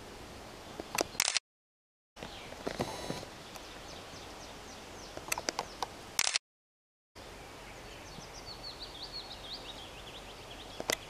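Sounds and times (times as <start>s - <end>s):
outdoor background hiss: 0.0s - 1.4s, 2.2s - 6.4s, 7.2s - 11.0s
sharp clicks: 0.8s - 1.4s, 5.2s - 6.4s
small songbird singing: 2.2s - 2.7s, 3.3s - 5.9s, 7.2s - 11.0s.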